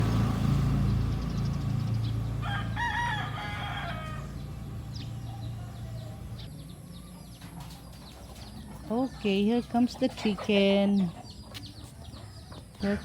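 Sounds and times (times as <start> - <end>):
rooster crowing: 2.4 - 4.6.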